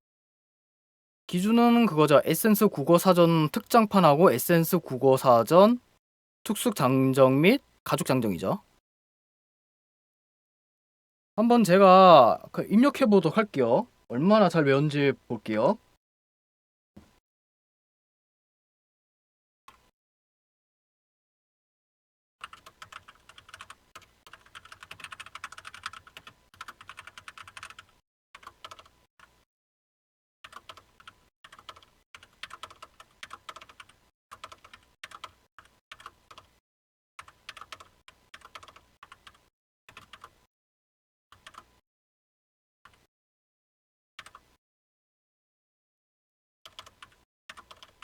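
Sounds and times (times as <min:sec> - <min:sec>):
typing on computer keyboard: 0:22.4 - 0:29.3, 0:30.4 - 0:36.5, 0:37.2 - 0:40.4, 0:41.3 - 0:41.8, 0:44.2 - 0:44.6, 0:46.7 - 0:48.0.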